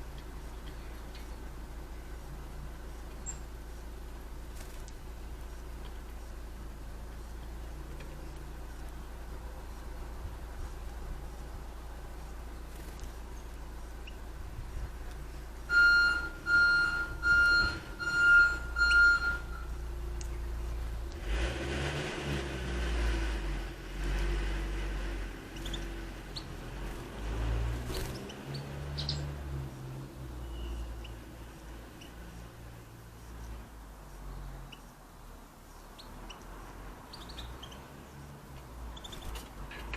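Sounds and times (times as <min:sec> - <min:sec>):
steady low rumble: 0:00.0 - 0:15.7
small birds chirping: 0:00.0 - 0:17.3, 0:18.0 - 0:21.2, 0:25.2 - 0:39.9
high-pitched electronic beeps: 0:15.7 - 0:19.8.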